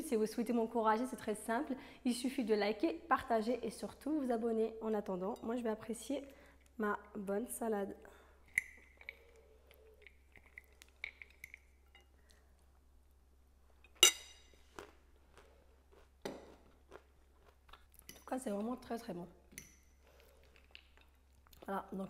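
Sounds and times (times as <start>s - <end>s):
chewing and crunching: 8.6s - 12.5s, 14.6s - 18.8s, 19.9s - 22.0s
fork clinking on ceramic bowl: 13.8s - 14.5s.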